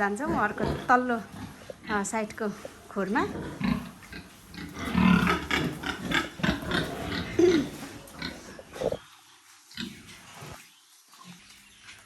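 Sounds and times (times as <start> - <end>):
pigs grunting and squealing: 0.0 - 9.1.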